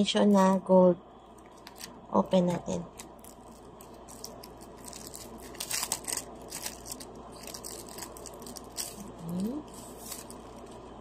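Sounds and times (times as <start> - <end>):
packaging crinkling and tearing: 1.4 - 2.0, 2.9 - 10.9.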